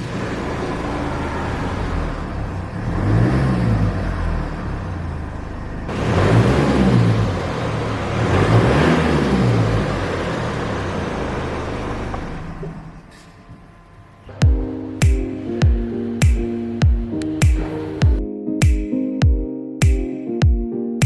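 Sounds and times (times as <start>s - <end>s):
diesel engine idling and revving: 0.0s - 13.3s.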